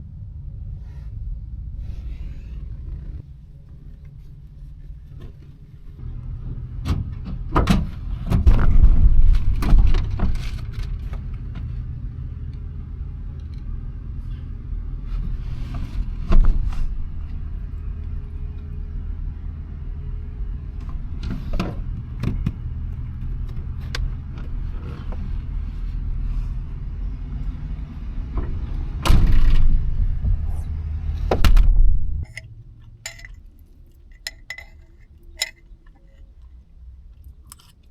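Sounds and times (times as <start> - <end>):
car road and engine rumble: 0.0 - 37.9
knocks and rattles: 6.4 - 11.3.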